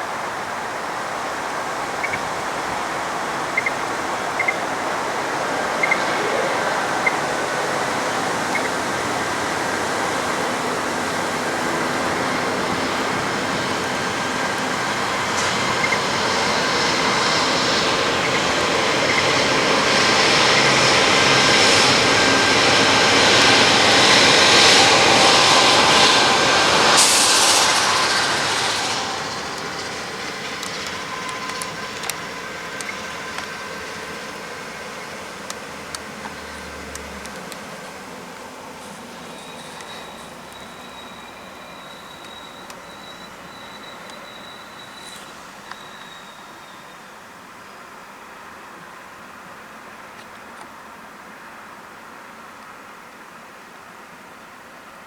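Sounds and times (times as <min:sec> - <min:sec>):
train passing: 0:00.0 - 0:52.8
brief high hiss: 0:26.8 - 0:29.9.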